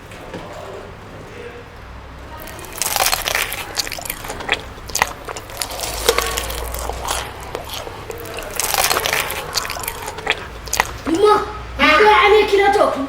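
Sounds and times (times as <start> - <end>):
person crunching fried chicken: 2.4 - 11.1.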